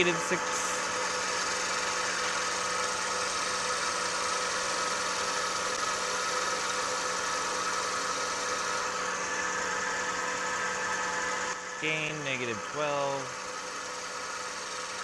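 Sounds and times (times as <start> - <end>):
wood lathe motor humming: 0.0 - 15.0.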